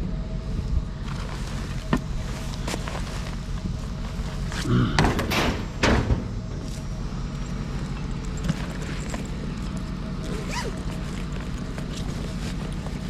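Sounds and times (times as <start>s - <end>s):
low vehicle rumble: 0.0s - 13.0s
loud thumps: 4.9s - 6.9s.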